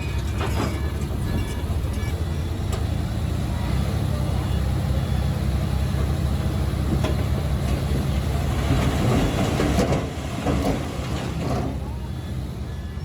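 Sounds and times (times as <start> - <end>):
metallic clanking and rattling: 0.0 - 2.9, 6.0 - 12.2
diesel machinery running: 0.0 - 13.0.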